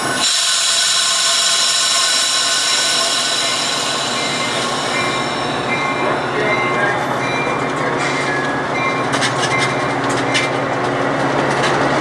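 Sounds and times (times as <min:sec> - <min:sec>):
train metallic squeal: 0:00.0 - 0:10.6.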